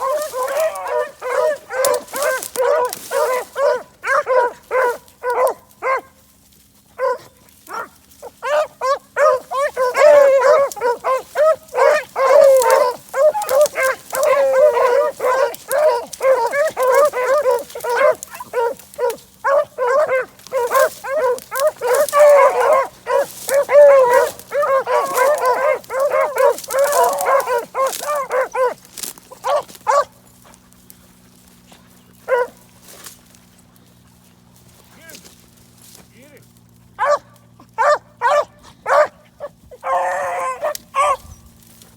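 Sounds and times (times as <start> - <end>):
hounds baying and barking: 0.0 - 36.0, 36.6 - 41.9.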